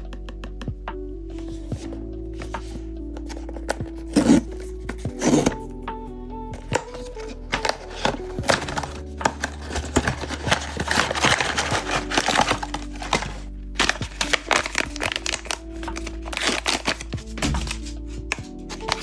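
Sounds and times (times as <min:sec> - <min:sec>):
background music: 0:00.0 - 0:19.0
packaging crinkling: 0:06.6 - 0:19.0.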